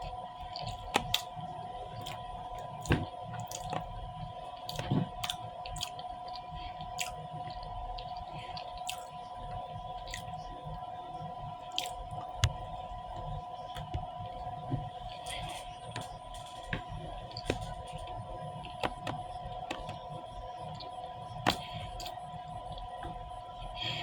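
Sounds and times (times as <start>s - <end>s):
chewing and mouth smacks: 2.0s - 3.9s, 4.6s - 10.4s, 11.7s - 12.6s.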